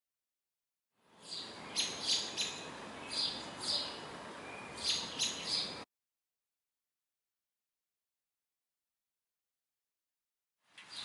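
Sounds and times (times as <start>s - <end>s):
bird chirping: 1.1s - 5.8s, 10.8s - 11.0s.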